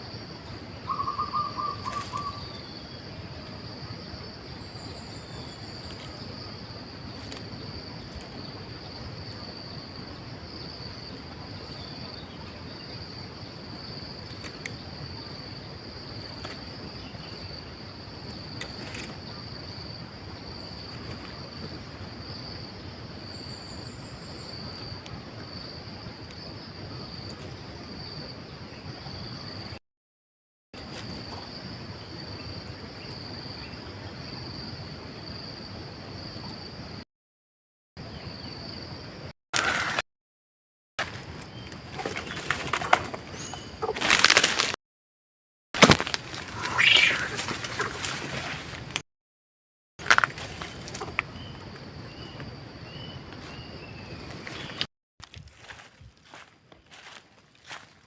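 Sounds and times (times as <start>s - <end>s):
high-pitched insect chorus: 0.0s - 29.8s, 46.1s - 48.8s, 55.6s - 57.9s.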